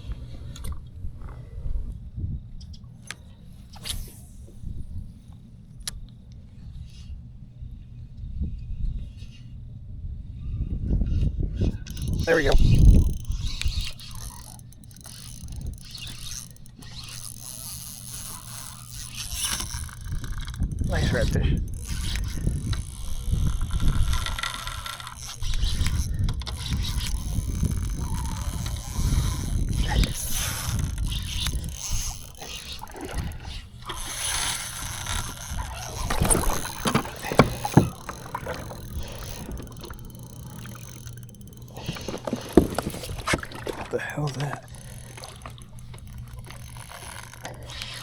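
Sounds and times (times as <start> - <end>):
rustling and scraping on kayak: 0.0 - 5.5, 11.0 - 48.0
fishing reel ratcheting: 11.6 - 48.0.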